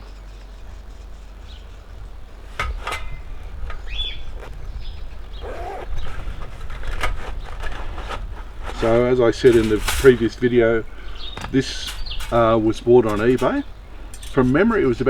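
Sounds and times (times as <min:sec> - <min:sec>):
steady low rumble: 0:00.0 - 0:15.0
knocks and clinks of cooker parts: 0:01.8 - 0:04.2, 0:09.5 - 0:15.0.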